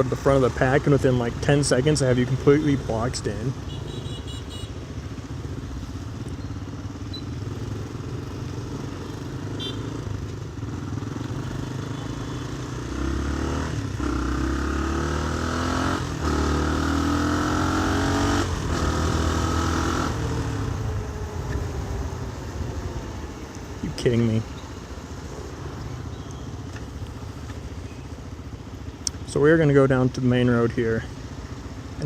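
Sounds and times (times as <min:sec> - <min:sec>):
motorcycle engine accelerating: 0:05.1 - 0:21.6.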